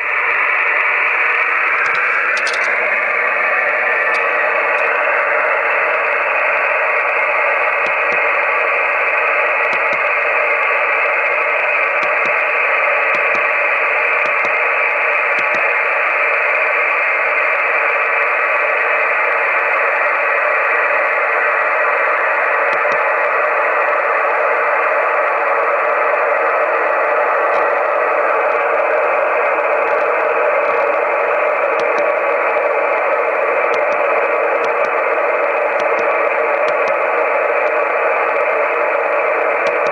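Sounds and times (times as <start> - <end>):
radio receiver hiss: 0.0 - 39.9
faint clicks: 15.3 - 15.7, 35.7 - 37.0, 39.6 - 39.9.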